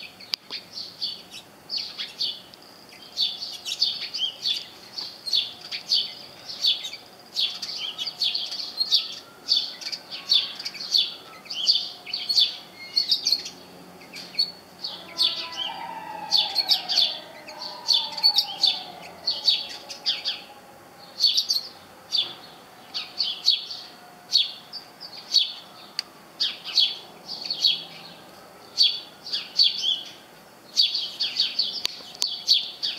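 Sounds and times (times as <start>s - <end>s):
small songbird chirping: 0.0s - 32.9s.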